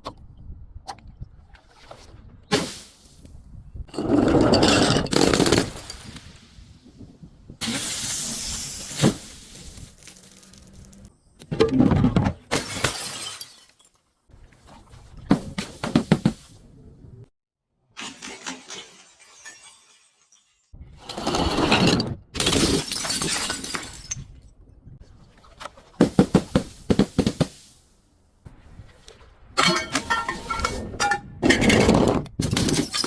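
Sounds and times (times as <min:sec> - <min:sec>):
glass smashing and crunching: 0:04.6 - 0:06.5, 0:12.5 - 0:14.0, 0:18.0 - 0:20.7, 0:22.4 - 0:24.3, 0:32.5 - 0:33.0.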